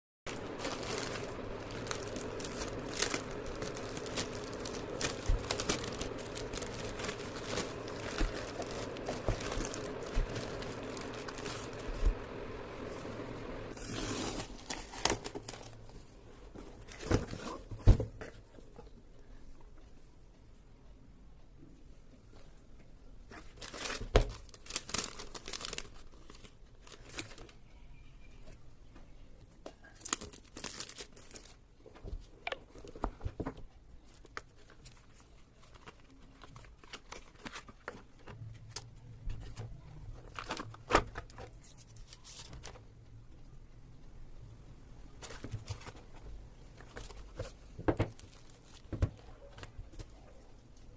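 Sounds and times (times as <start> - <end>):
plastic wrap crinkling: 0.3 - 16.2, 23.3 - 27.8, 29.8 - 42.9, 45.1 - 50.3.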